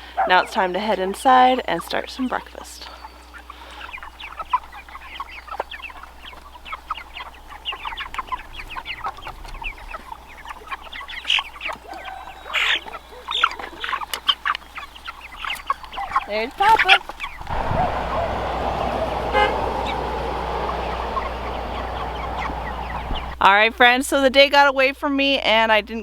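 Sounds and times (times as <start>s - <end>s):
chickens clucking and chirping: 3.4s - 16.3s, 17.1s - 23.4s.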